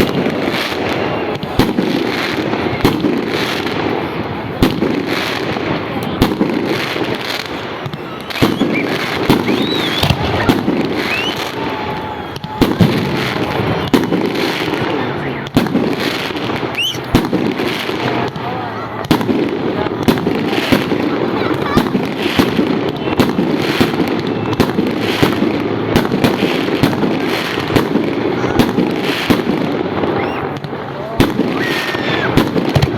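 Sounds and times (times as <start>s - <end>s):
fireworks bangs: 0.0s - 32.9s
fireworks crackling: 0.0s - 32.9s
fireworks whistles: 0.0s - 32.9s.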